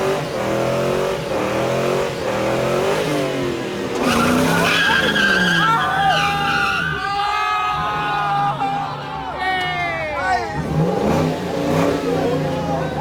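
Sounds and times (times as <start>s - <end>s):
car engine revving hard: 0.0s - 6.8s, 10.6s - 13.0s
tires squealing on pavement: 4.0s - 9.0s.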